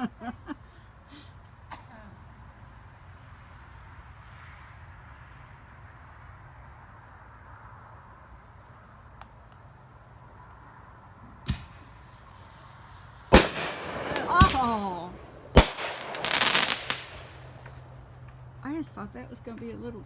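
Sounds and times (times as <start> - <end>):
sharp firework bang: 11.4 - 12.0, 13.3 - 17.8
firework whooshing hiss: 11.4 - 18.4.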